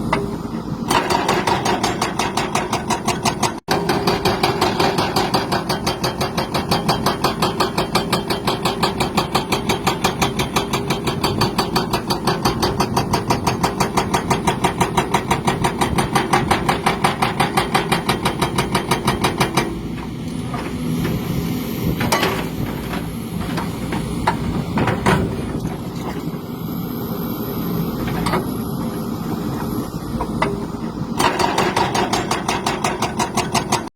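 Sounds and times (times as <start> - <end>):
engine knocking rhythmically: 0.9 - 19.7, 31.2 - 33.9.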